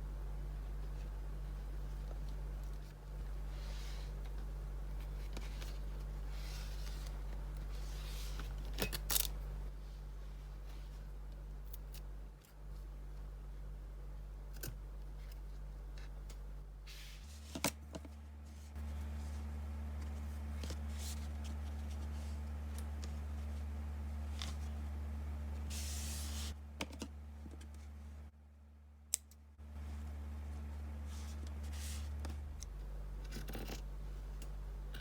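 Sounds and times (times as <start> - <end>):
steady low hum: 0.0 - 35.0
soft handling noises: 15.0 - 24.9.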